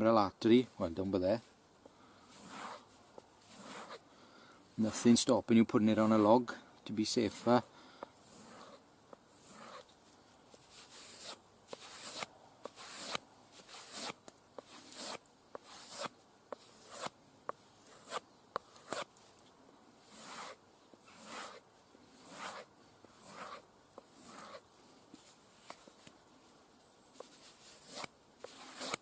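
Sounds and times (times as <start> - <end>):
knife swishing along a strop: 2.2 - 4.0, 7.2 - 19.4, 20.0 - 29.0.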